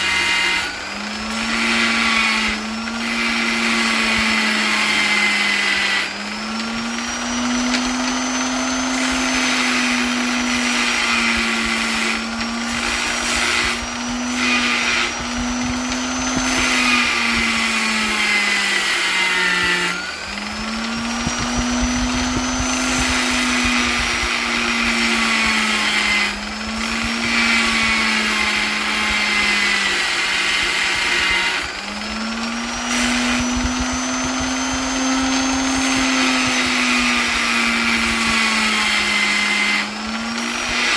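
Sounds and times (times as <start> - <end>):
electric polisher whining: 0.0 - 40.9.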